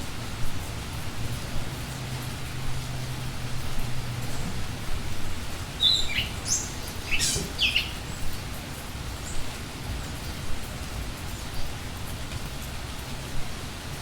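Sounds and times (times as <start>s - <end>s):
forest ambience hiss: 0.0s - 14.0s
birds chirping and whistling: 5.8s - 8.4s.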